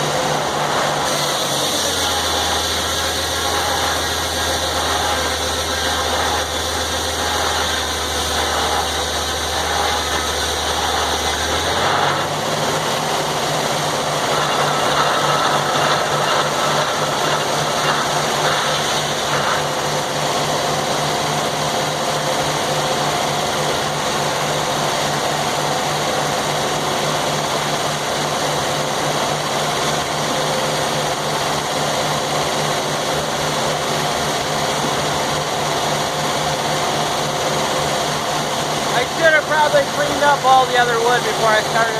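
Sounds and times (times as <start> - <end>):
engine running steadily: 0.0 - 41.9.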